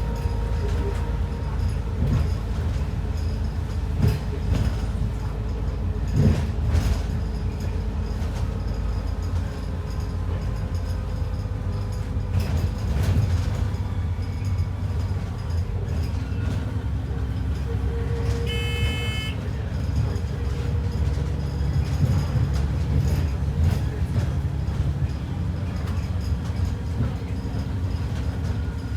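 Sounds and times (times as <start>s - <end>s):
bus engine and road rumble: 0.0s - 28.9s
short electronic beep: 18.5s - 19.4s.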